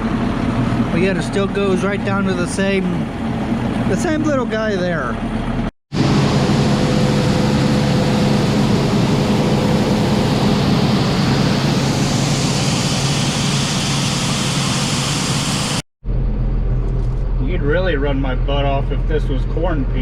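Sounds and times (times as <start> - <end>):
diesel machinery engine hum: 0.0 - 20.0
wide even rushing noise: 6.0 - 16.7.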